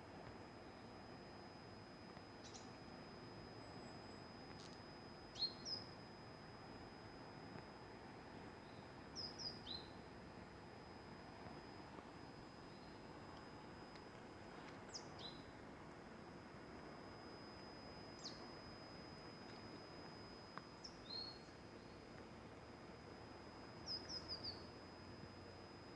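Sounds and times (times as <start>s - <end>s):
faint high-pitched tone: 0.0s - 25.9s
soft hiss: 0.0s - 25.9s
small songbird chirping: 2.4s - 2.8s, 3.5s - 6.1s, 8.6s - 10.1s, 12.4s - 13.1s, 14.9s - 15.6s, 17.8s - 22.2s, 23.6s - 24.8s.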